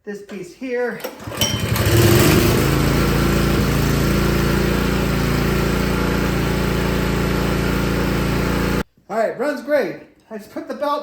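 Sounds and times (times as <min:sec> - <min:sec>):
small gas engine running: 0:01.1 - 0:08.8.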